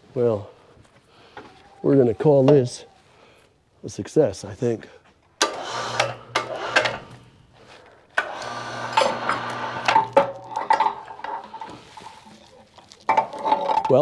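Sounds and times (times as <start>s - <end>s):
winch running: 5.4s - 7.2s, 8.2s - 11.8s.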